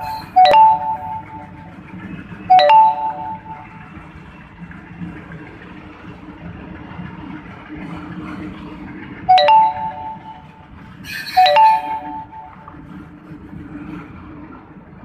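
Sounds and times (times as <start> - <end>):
two-note chime: 0.0 - 1.9, 2.5 - 4.0, 9.3 - 10.8, 11.4 - 12.8.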